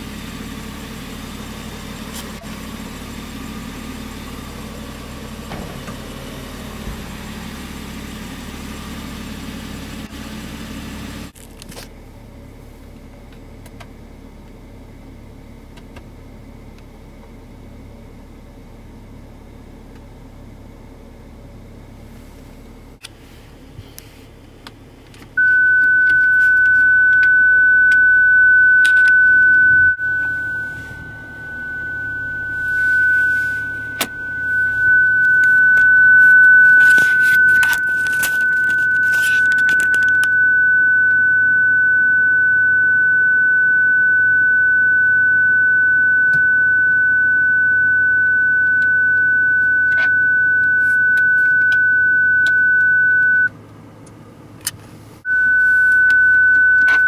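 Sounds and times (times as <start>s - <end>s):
high-pitched electronic beep: 25.4s - 53.5s, 55.3s - 57.0s.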